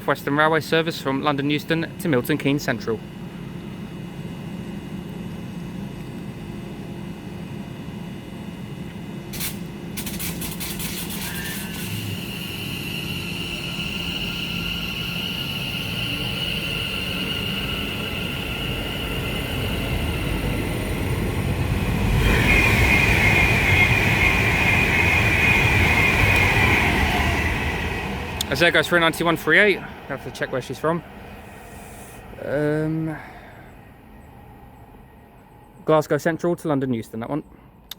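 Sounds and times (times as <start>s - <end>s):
high electric whine: 0.0s - 33.1s
train rumble: 9.3s - 36.1s
train passing at speed: 10.8s - 35.8s.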